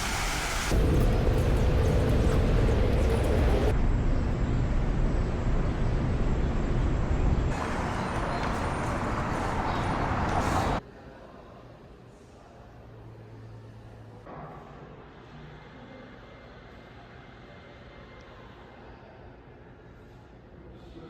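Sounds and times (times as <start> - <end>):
loud outdoor rumble: 0.0 - 10.8.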